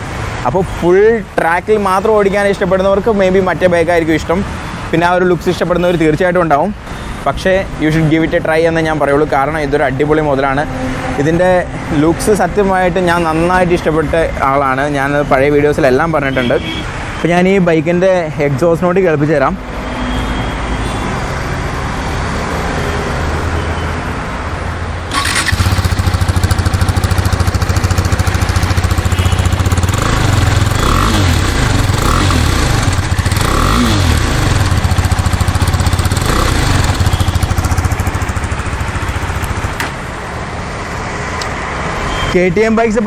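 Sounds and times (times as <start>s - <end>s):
motorcycle engine idling: 25.1s - 39.9s.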